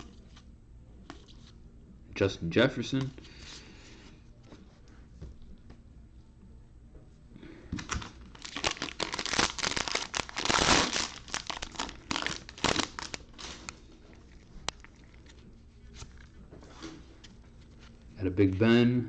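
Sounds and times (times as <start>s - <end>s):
wrapper tearing and crinkling: 7.9s - 13.8s.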